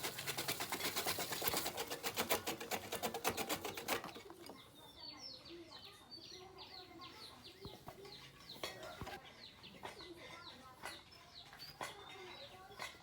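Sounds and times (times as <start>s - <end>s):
faint bird chirping: 3.2s - 13.0s.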